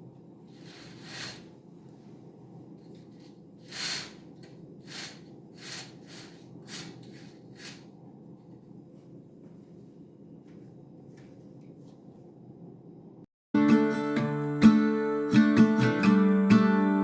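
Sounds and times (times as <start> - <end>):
low steady hum: 0.0 - 13.3.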